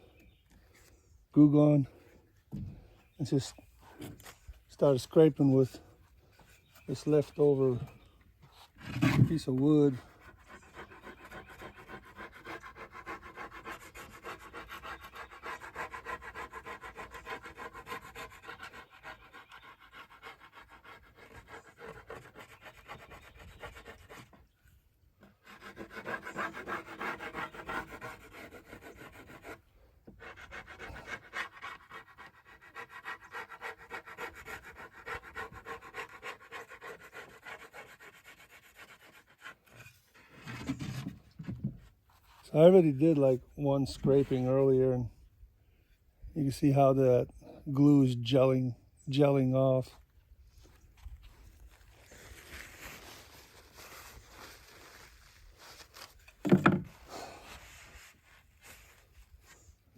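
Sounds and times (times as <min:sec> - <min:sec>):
wood scraping glue off drum shell: 0:08.5 - 0:10.0, 0:39.6 - 0:42.2, 0:54.0 - 0:59.0.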